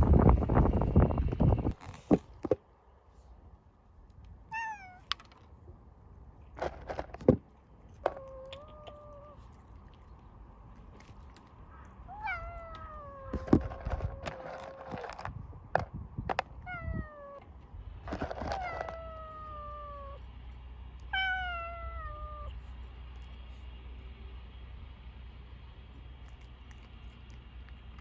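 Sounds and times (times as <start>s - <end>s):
cat meowing: 4.5s - 5.1s, 8.1s - 10.0s, 12.0s - 14.9s, 16.6s - 17.4s, 18.4s - 20.2s, 21.0s - 22.6s.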